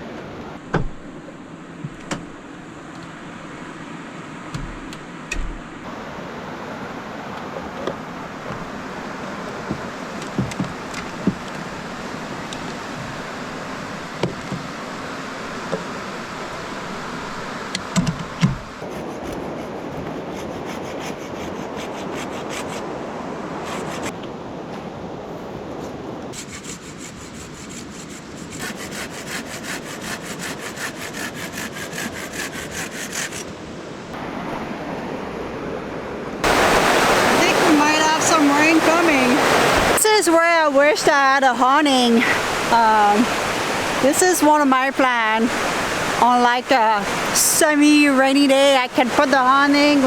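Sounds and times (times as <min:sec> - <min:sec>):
hand saw cutting wood: 0:18.8 - 0:22.8, 0:26.4 - 0:33.5
steady rain falling: 0:36.4 - 0:50.0.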